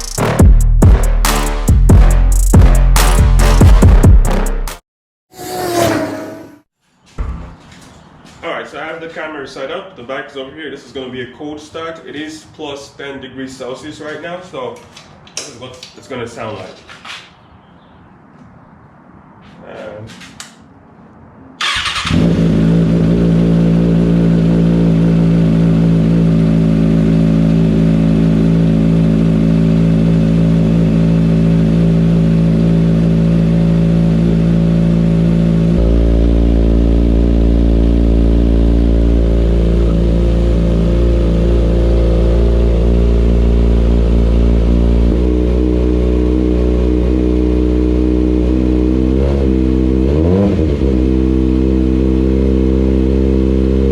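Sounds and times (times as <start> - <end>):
motorcycle engine starting and idling: 21.6 - 34.8.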